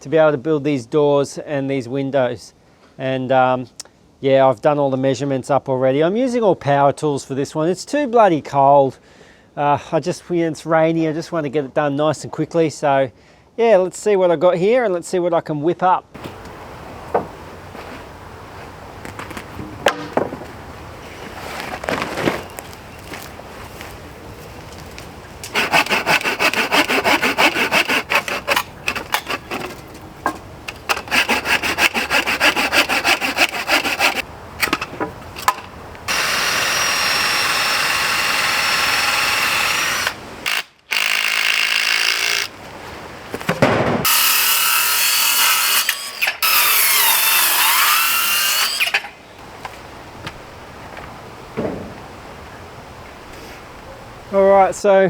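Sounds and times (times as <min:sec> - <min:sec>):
saw cutting through wood: 0:25.4 - 0:30.0, 0:30.7 - 0:34.3, 0:36.1 - 0:42.5, 0:44.0 - 0:49.1
drill running: 0:36.1 - 0:42.5.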